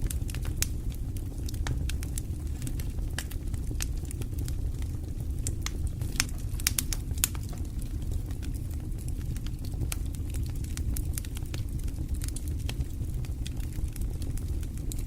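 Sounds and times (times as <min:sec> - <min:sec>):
fire crackles and pops: 0:00.0 - 0:15.0
low rumble of flames: 0:00.0 - 0:15.0.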